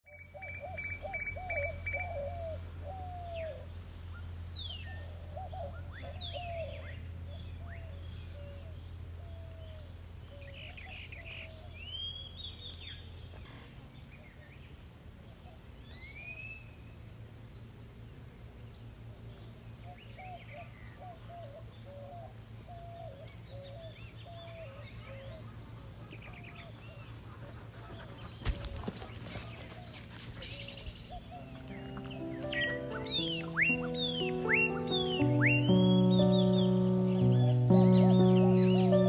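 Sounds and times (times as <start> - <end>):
birds calling and chirping: 0.1 - 3.8, 4.5 - 8.8, 22.7 - 39.0.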